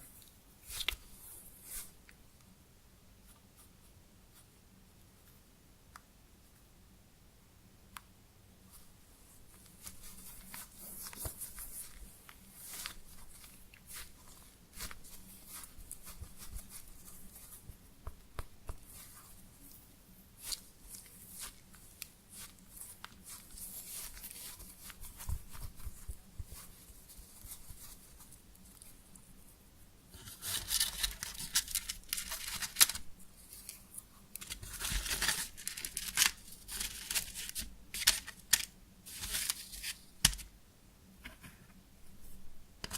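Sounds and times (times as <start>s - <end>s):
crinkling and tearing: 30.2s - 40.5s.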